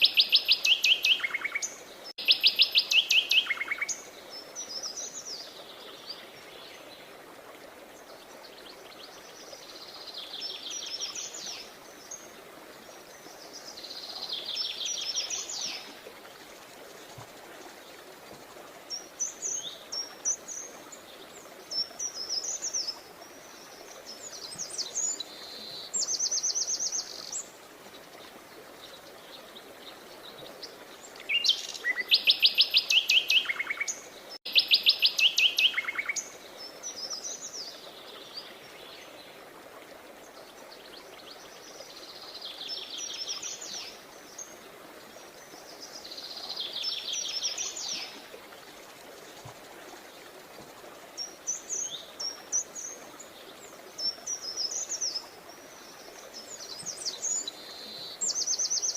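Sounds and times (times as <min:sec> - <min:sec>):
songbirds trilling and chirping: 0:07.9 - 0:39.4.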